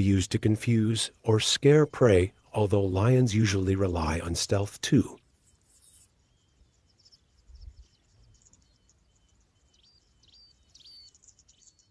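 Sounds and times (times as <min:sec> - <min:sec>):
insect calls: 0:05.2 - 0:11.9
small bird chirps: 0:05.2 - 0:11.9.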